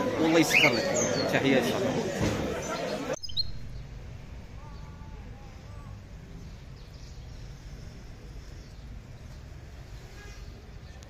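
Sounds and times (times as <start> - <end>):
songbird chirping: 0.0 - 11.0
low outdoor rumble: 3.4 - 11.0.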